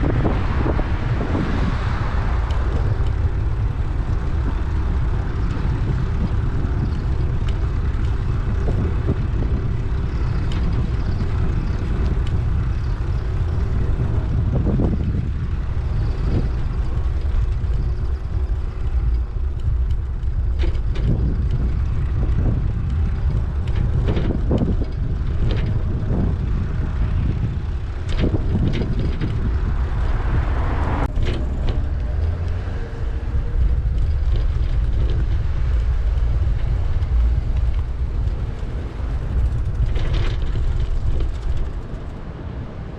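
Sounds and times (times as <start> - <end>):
bicycle clicks and rattles: 0.0 - 42.9
wind rumble on microphone: 0.0 - 42.9.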